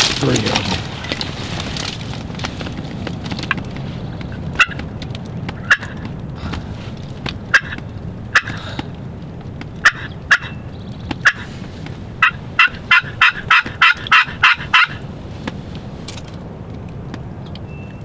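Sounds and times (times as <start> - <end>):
wild turkey yelping: 4.0 - 9.1, 9.7 - 15.2.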